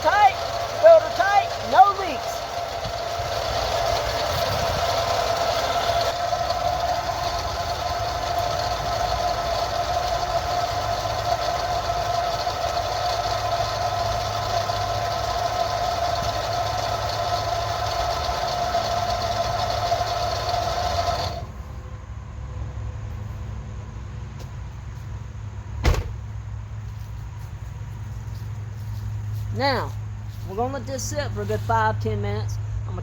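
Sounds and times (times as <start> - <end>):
car engine idling: 0.0 - 21.8
engine whine: 0.0 - 33.0.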